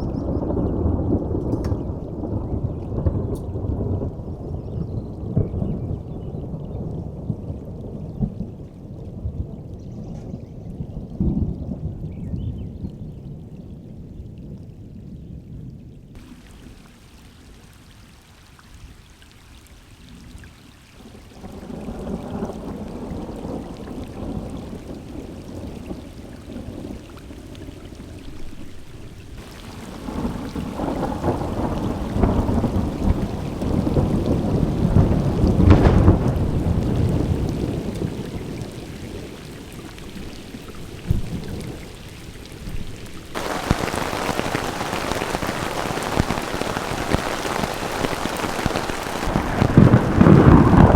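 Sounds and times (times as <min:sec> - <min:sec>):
rolling thunder: 0:00.0 - 0:09.7, 0:28.5 - 0:39.3, 0:42.7 - 0:50.9
rain: 0:00.0 - 0:50.9.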